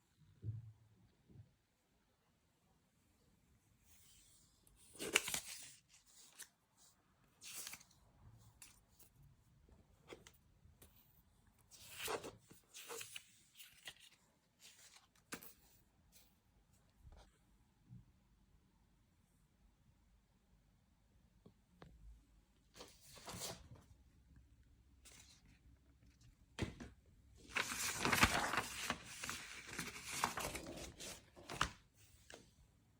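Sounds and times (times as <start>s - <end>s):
paper rustling and crinkling: 4.8s - 6.5s, 7.4s - 9.1s, 11.7s - 15.8s, 22.8s - 23.8s, 27.4s - 32.4s
paper and packaging crinkling: 27.5s - 31.8s.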